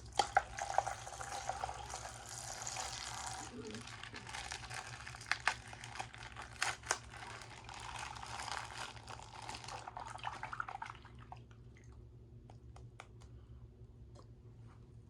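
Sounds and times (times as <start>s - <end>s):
plastic bag crinkling: 1.9s - 10.2s
water sloshing and spilling: 7.2s - 12.0s.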